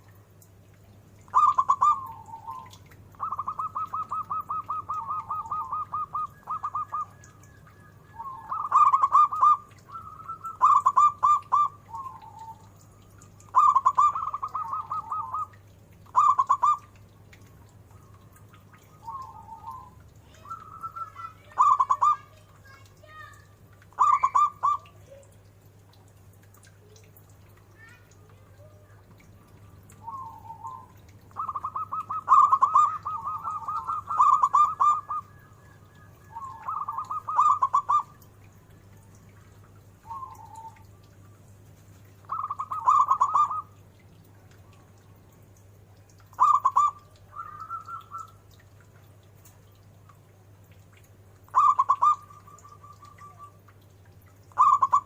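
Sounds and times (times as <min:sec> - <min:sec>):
dove cooing: 0:01.3 - 0:12.8, 0:13.4 - 0:16.9, 0:18.8 - 0:22.3, 0:23.9 - 0:25.4, 0:28.6 - 0:38.2, 0:40.0 - 0:40.9, 0:42.2 - 0:43.8, 0:46.2 - 0:48.6, 0:51.5 - 0:53.7, 0:54.5 - 0:55.0.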